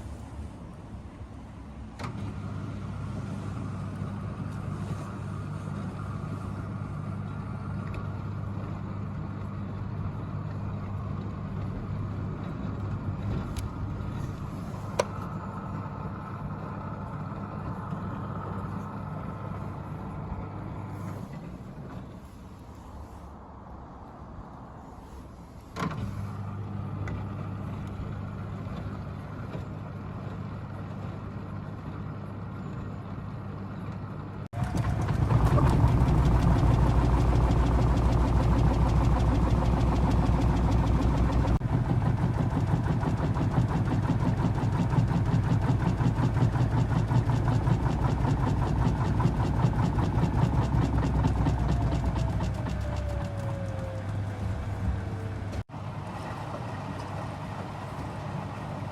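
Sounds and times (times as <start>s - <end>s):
washing machine motor hum: 34.5s - 58.9s.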